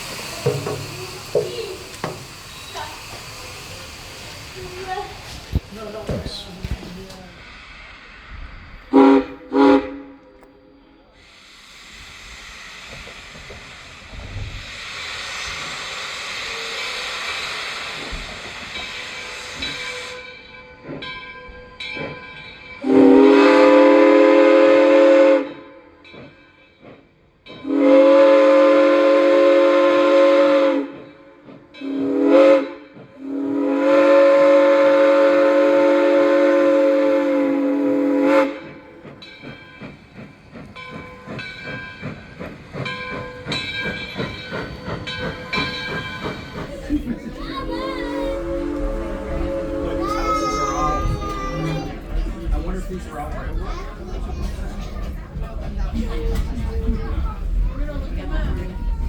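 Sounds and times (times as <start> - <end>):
steam hissing: 0.0 - 10.0, 11.0 - 21.1, 27.6 - 59.0
train rattling and clanking: 0.0 - 59.0
steam whistle blasts: 8.9 - 10.3, 22.8 - 25.7, 27.6 - 31.0, 31.8 - 38.8, 48.2 - 51.2.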